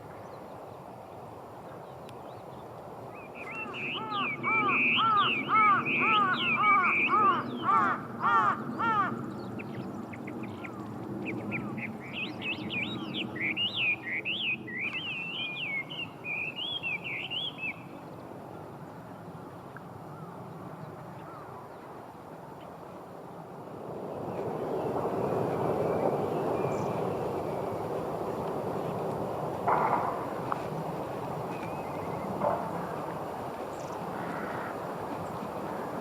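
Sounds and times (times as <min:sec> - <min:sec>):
birds high twittering chatter: 0:01.8 - 0:18.0, 0:24.2 - 0:36.0
birds harsh repeated calls: 0:03.4 - 0:10.8, 0:29.6 - 0:36.0.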